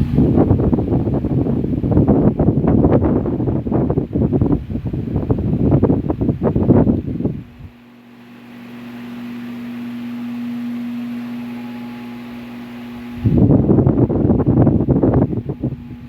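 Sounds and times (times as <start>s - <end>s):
fan air buffeting microphone: 0.0s - 16.0s
fan motor hum: 0.0s - 16.0s
rush of fan blades: 0.0s - 16.0s.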